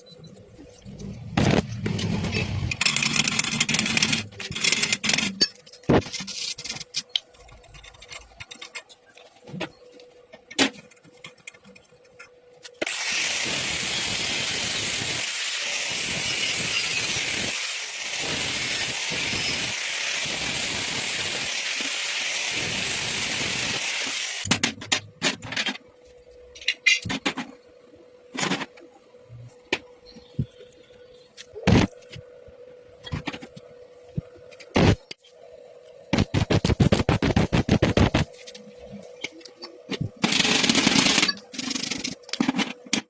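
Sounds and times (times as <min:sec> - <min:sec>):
welding arc crackling: 0:12.8 - 0:24.5, 0:36.1 - 0:38.3, 0:40.0 - 0:42.4
faint steady hum: 0:24.5 - 0:43.0.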